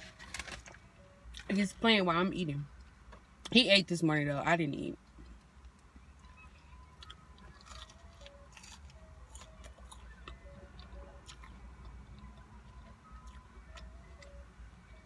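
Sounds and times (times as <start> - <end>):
faint chewing and mouth sounds: 5.0 - 15.0.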